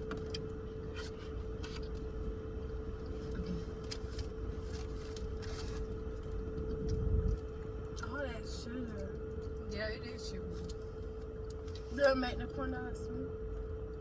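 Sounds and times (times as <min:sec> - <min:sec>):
car interior hum and rumble: 0:00.0 - 0:14.0
food wrappers crinkling: 0:03.8 - 0:07.5.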